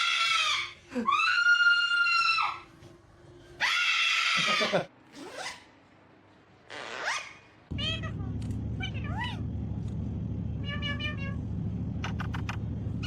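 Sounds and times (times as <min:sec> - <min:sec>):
parrot screeching: 0:00.0 - 0:02.6, 0:03.6 - 0:05.6.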